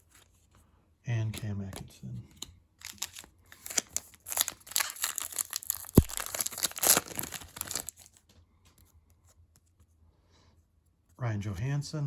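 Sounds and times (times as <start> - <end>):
foil wrappers crinkling and tearing: 2.8 - 8.3.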